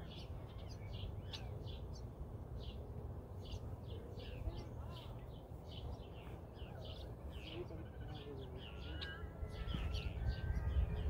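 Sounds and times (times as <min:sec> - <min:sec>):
birds chirping: 0:00.0 - 0:11.0
steady low rumble: 0:09.3 - 0:11.0.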